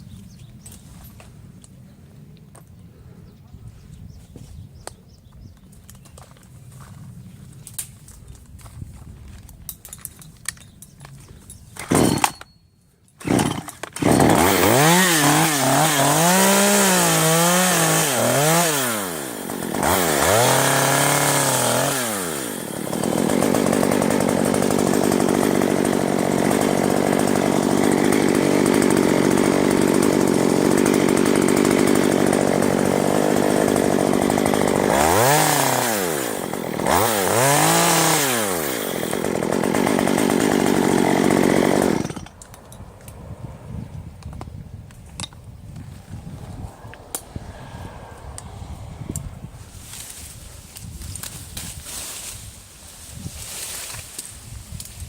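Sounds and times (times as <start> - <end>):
chainsaw cutting wood: 11.7 - 12.5, 13.2 - 42.7, 49.8 - 55.0
chainsaw revving: 11.8 - 12.3, 13.2 - 42.4.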